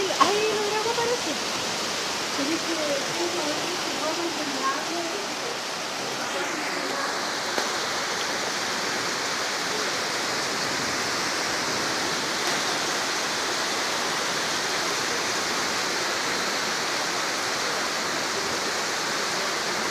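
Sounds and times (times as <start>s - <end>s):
steady rain hiss: 0.0s - 19.9s.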